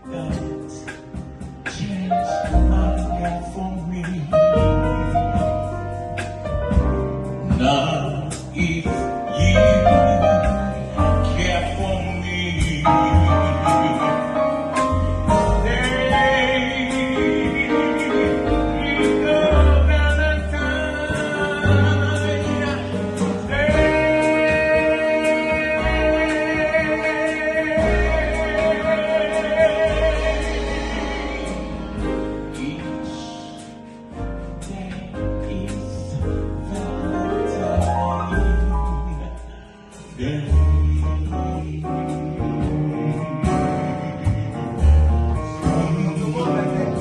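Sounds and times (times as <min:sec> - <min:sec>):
bass line: 0:00.0 - 0:47.0
instrumental accompaniment: 0:00.0 - 0:47.0
person singing with vibrato: 0:07.4 - 0:33.8.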